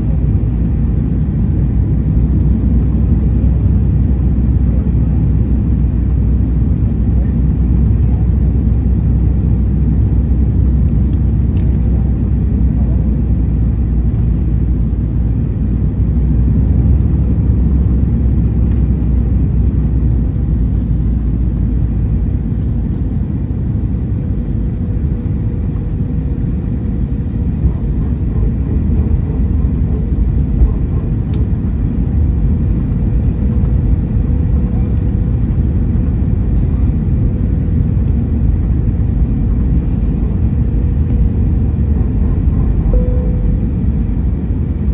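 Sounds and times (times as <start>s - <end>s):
airliner engines rumbling in cabin: 0.0s - 44.9s.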